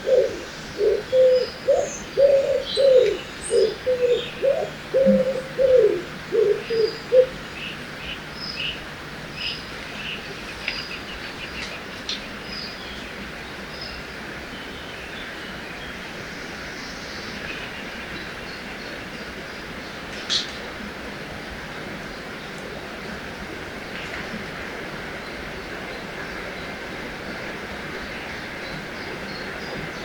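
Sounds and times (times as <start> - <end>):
bird cooing: 0.0 - 7.4
flowing water hiss: 0.0 - 30.0.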